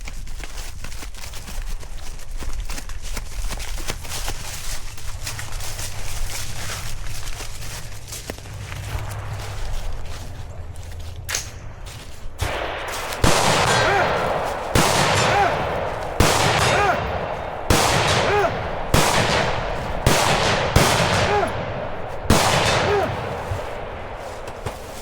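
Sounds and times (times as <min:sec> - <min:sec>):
gunshots: 0:08.4 - 0:25.0.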